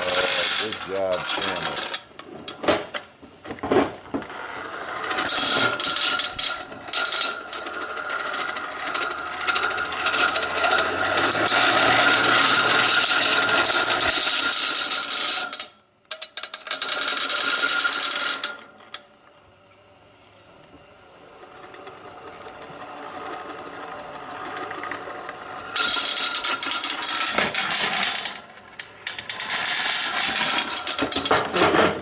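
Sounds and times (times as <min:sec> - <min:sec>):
hand-cranked blower whirring: 0:00.0 - 0:02.6, 0:03.9 - 0:15.6, 0:21.4 - 0:32.0.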